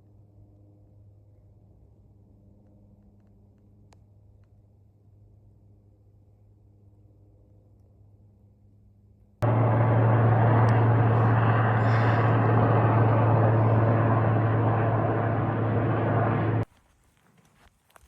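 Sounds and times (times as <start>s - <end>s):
helicopter engine and rotor drone: 9.4s - 16.6s.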